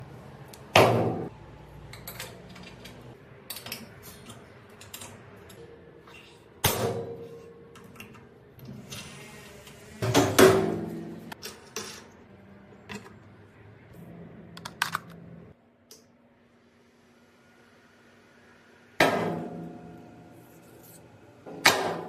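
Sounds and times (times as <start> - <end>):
metal parts clicking and tapping: 1.8 - 5.7.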